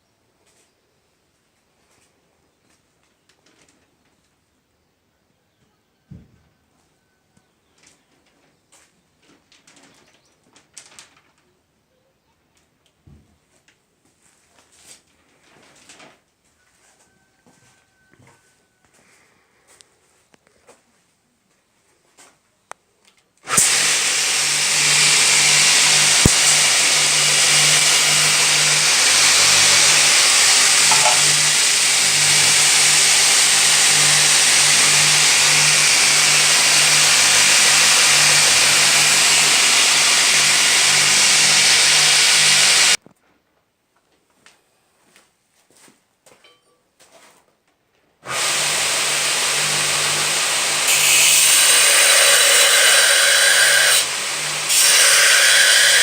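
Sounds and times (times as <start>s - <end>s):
belt sander running: 23.5s - 43.0s, 48.3s - 56.0s.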